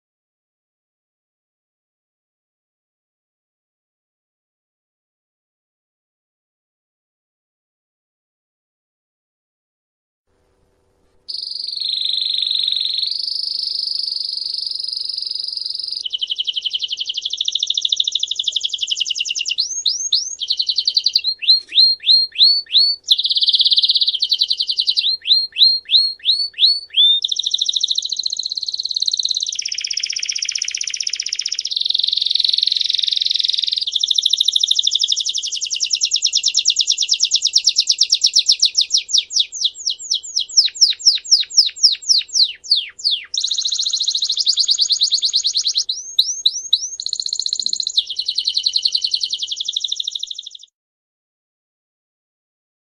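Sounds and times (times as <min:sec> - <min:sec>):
songbird singing trills: 0:11.3 - 0:50.7.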